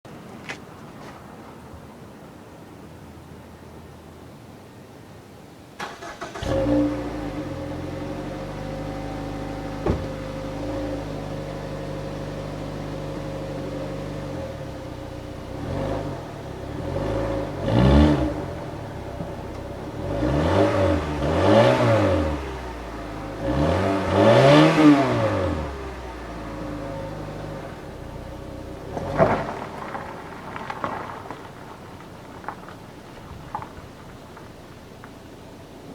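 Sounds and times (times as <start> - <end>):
engine revving: 5.8 - 12.7, 15.5 - 18.8, 19.9 - 27.8
car engine starting and idling: 5.8 - 35.9
loud thump: 9.8 - 10.4.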